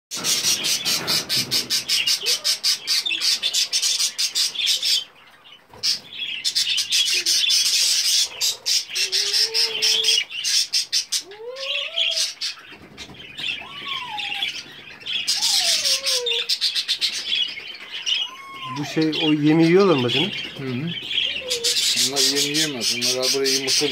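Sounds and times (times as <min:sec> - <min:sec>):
chicks chirping: 0:00.1 - 0:23.9.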